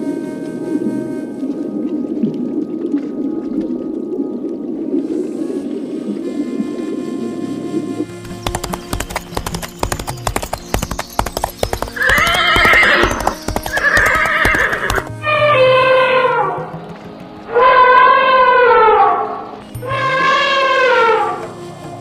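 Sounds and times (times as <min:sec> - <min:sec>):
background music: 0:00.0 - 0:22.0
horse hooves clip-clopping: 0:08.1 - 0:15.1, 0:16.2 - 0:18.3
horse whinnying: 0:12.0 - 0:16.6, 0:17.5 - 0:21.5.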